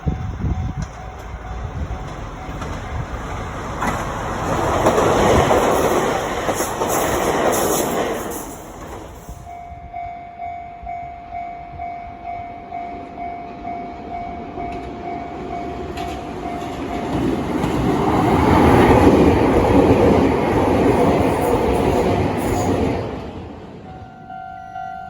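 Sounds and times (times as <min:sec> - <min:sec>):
train approaching: 0:00.0 - 0:25.0.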